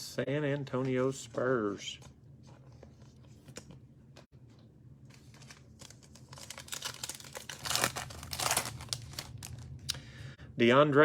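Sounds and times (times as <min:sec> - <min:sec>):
plastic wrapper crinkling: 0:05.1 - 0:09.9.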